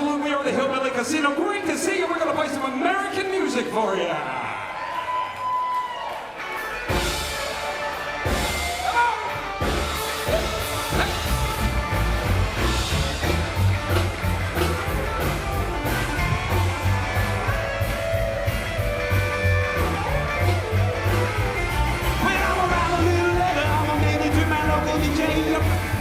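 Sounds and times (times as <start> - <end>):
drums: 5.7 - 26.0
electric guitar: 6.0 - 26.0
bass guitar: 6.4 - 26.0.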